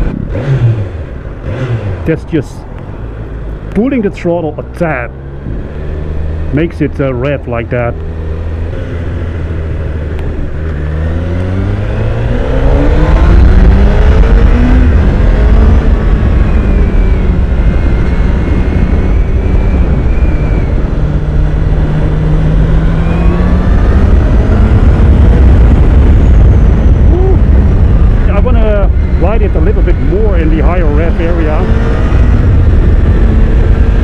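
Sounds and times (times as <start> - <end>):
motorcycle engine revving: 0.0 - 34.0
wind rushing: 8.2 - 34.0.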